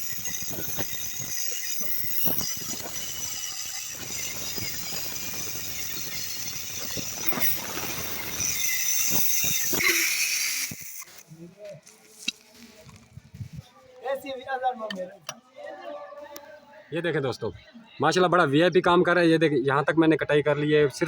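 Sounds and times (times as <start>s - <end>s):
angle grinder cutting metal: 0.0s - 11.2s.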